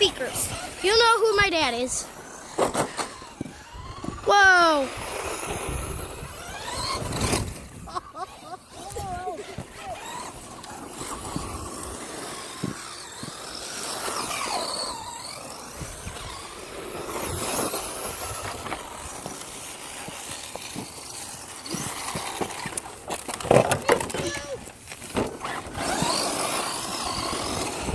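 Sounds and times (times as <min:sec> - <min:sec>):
electric motors whining: 0:00.0 - 0:27.9
rush of tyre noise: 0:04.8 - 0:07.9, 0:24.9 - 0:27.9.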